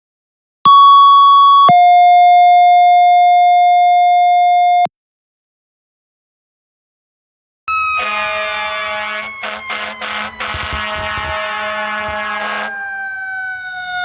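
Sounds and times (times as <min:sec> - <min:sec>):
two-tone dispatch tones: 0:00.7 - 0:04.9.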